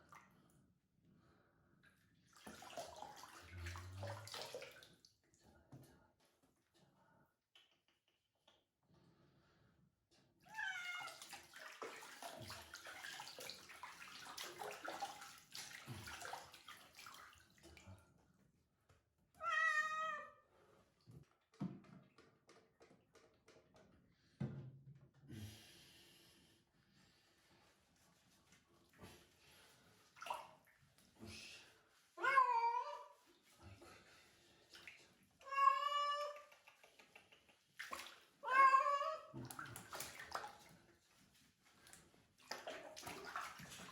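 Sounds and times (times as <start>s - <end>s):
cat meowing: 10.5s - 11.2s, 19.4s - 20.4s, 32.2s - 33.1s, 35.4s - 36.5s, 38.4s - 39.3s
water running and splashing: 10.9s - 17.6s, 39.4s - 40.8s, 41.7s - 43.9s.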